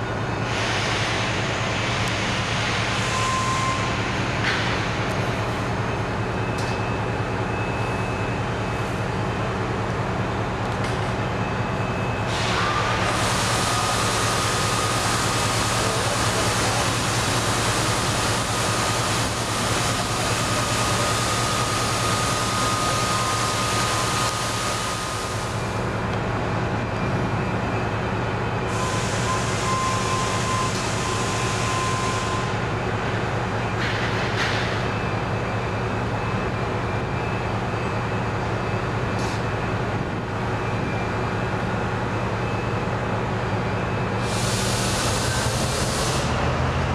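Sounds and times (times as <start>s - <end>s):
train low throbbing: 0.0s - 46.9s
train loud hissing: 0.4s - 3.2s, 12.3s - 25.8s, 28.7s - 32.6s, 44.2s - 46.5s.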